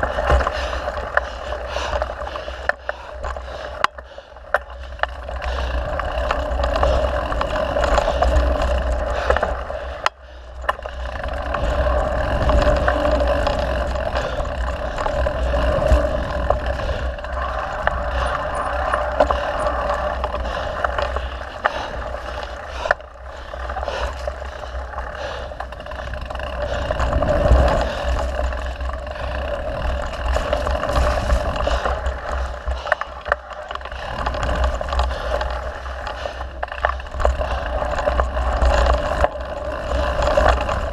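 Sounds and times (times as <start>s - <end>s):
bike clicks and rattles: 0.0s - 40.9s
bike tyres rolling on dirt: 0.0s - 40.9s.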